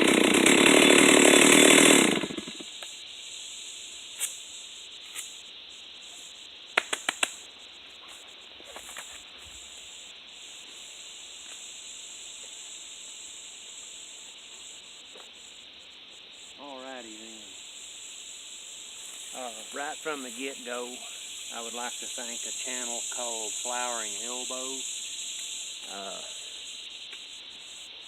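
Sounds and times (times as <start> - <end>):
insect-like chirring hiss: 2.2 - 28.0
quick sharp clicks: 6.8 - 7.4.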